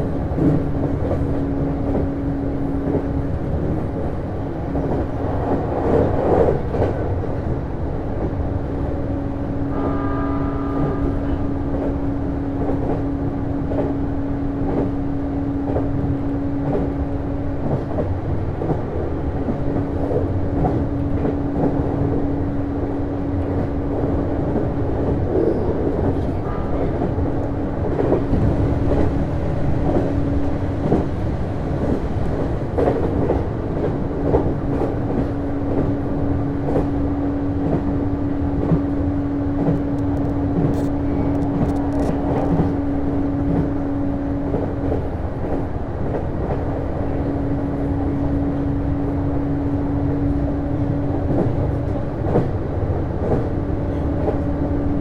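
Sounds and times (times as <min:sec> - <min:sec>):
train rumble and drone: 0:00.0 - 0:55.0.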